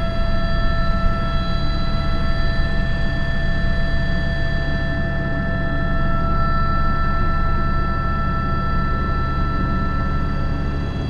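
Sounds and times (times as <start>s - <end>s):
helicopter engine and rotor: 0.0s - 11.0s.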